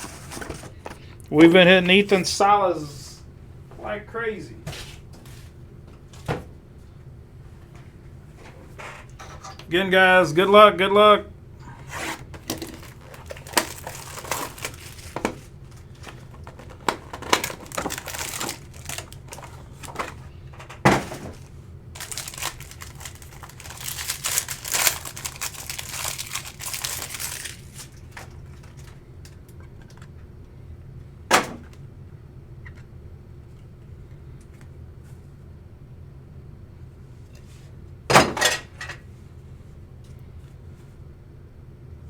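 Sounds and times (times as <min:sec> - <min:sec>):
wrapper crinkling and tearing: 0:12.4 - 0:20.2, 0:21.4 - 0:28.9.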